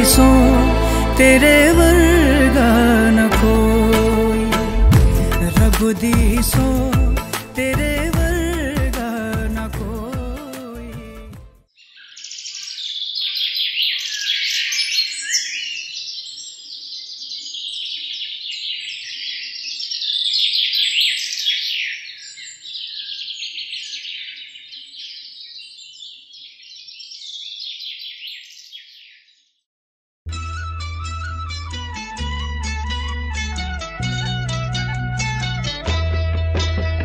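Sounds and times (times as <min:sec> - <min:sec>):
small birds chirping: 0:11.7 - 0:29.6.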